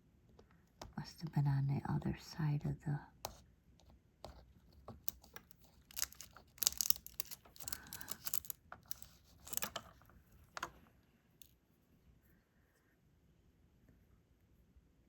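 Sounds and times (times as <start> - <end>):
crinkly plastic rustling: 5.2 - 10.2.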